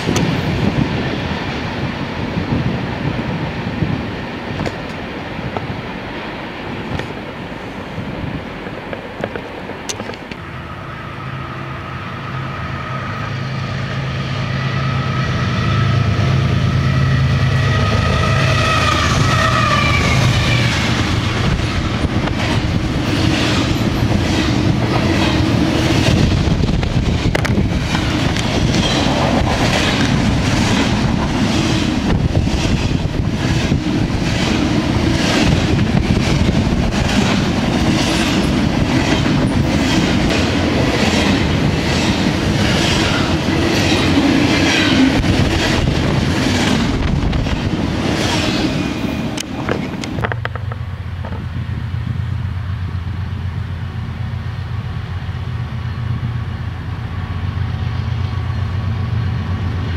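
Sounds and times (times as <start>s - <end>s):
diesel locomotives rumbling past: 0.0s - 59.9s
train wheels clacking on rails: 17.5s - 51.6s.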